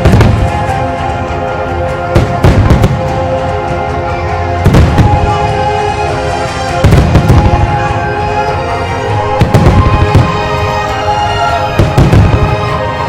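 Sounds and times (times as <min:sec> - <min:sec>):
fireworks bangs: 0:00.0 - 0:00.9, 0:02.1 - 0:03.3, 0:04.6 - 0:05.6, 0:06.4 - 0:07.9, 0:09.2 - 0:12.9
background music: 0:00.0 - 0:13.0.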